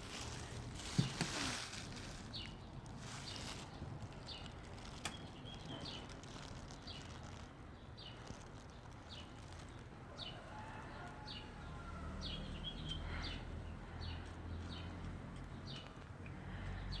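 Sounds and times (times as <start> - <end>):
small bird chirping: 2.1 - 10.5.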